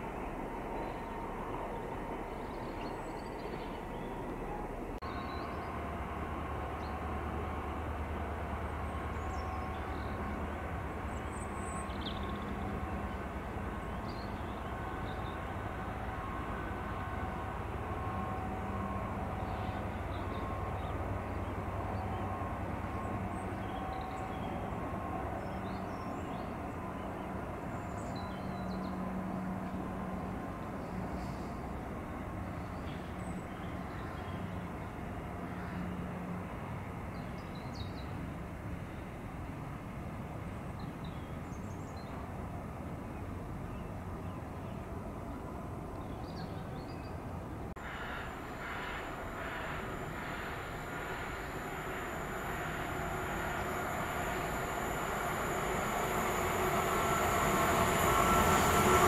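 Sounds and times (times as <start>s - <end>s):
freight train rumbling past: 0.0s - 59.0s
faint held tones: 47.8s - 59.0s.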